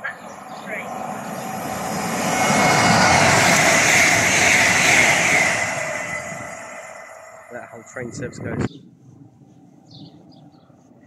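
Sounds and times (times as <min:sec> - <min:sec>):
train rushing past: 0:00.0 - 0:08.7.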